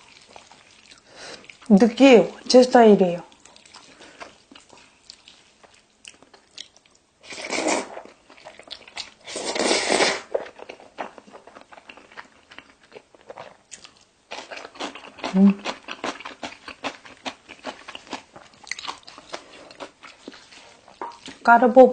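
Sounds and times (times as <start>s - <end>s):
wet chewing clicks: 3.2s - 7.1s, 10.4s - 21.5s.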